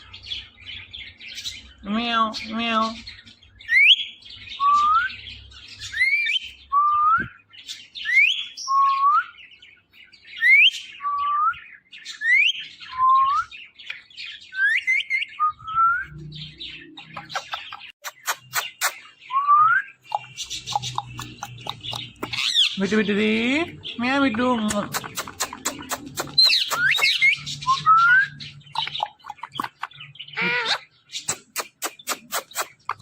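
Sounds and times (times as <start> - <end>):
parrot sharp clicks: 20.1 - 22.6, 24.7 - 27.2.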